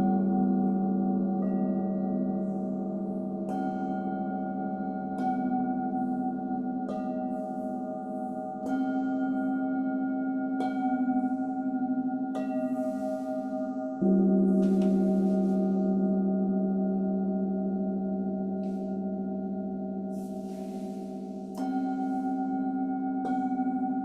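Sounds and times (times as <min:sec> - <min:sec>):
low wavering tone: 0:00.0 - 0:24.0
singing bowls ringing: 0:00.0 - 0:24.0.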